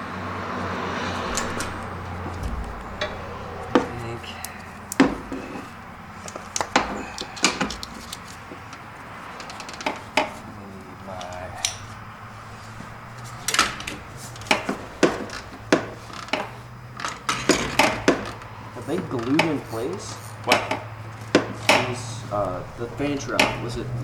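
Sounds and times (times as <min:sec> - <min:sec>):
low hum: 0:00.6 - 0:07.1
hand tools clinking on engine parts: 0:01.2 - 0:24.0.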